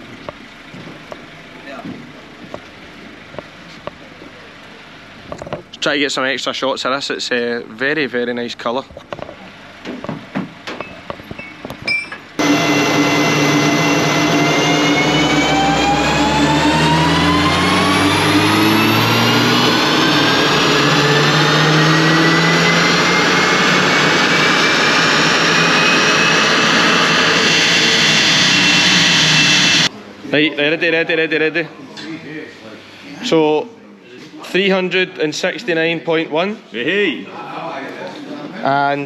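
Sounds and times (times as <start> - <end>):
rising dyno whine: 9.2 - 32.9
car engine at full throttle: 12.4 - 29.9.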